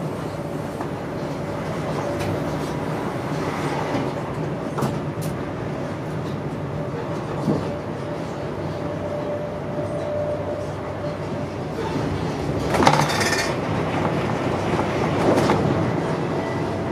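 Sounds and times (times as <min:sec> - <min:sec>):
passing train rushing surge: 0:00.0 - 0:16.9
wheels rumbling on rail: 0:00.0 - 0:16.9.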